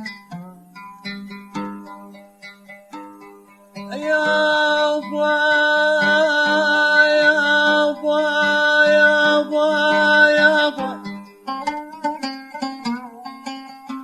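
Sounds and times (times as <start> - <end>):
man singing wordless held notes: 3.8 - 11.2.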